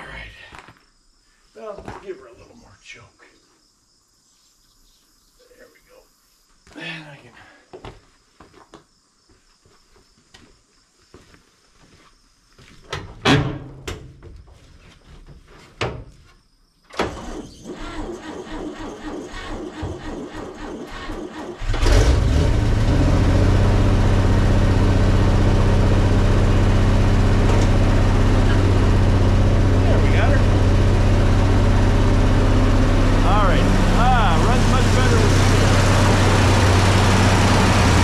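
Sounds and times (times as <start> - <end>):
starter cranking engine: 17.1 - 38.0
truck engine running loudly: 21.6 - 38.0.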